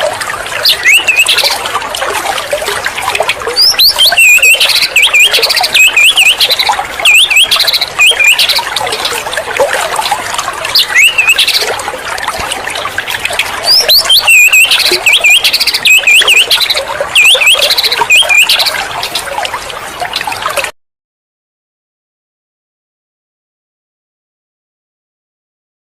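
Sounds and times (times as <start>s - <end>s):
bird whistling song: 0.6s - 1.6s, 3.6s - 8.7s, 10.8s - 11.6s, 13.6s - 18.8s.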